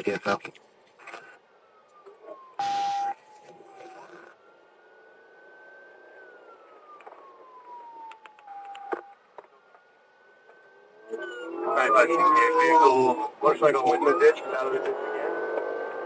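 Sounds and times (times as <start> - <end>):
radio noise with steady tone: 0.0 - 4.4, 11.1 - 15.8
police siren wailing: 1.0 - 16.0.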